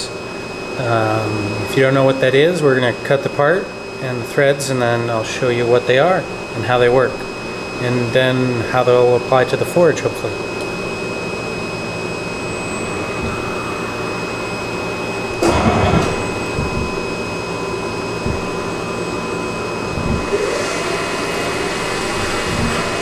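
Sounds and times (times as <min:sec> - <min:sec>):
lathe mechanical hum: 0:00.0 - 0:23.0
high whining tones: 0:10.4 - 0:23.0
dull knocks: 0:15.4 - 0:17.1, 0:18.2 - 0:18.6, 0:20.0 - 0:20.3.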